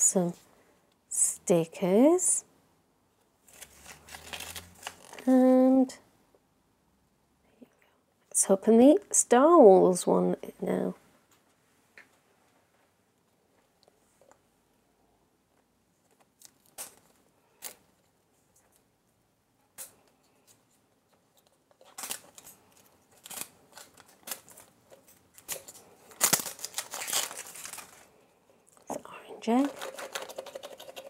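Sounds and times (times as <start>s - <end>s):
plastic wrapping tearing and crinkling: 3.5s - 5.3s, 21.8s - 28.1s, 29.5s - 30.7s.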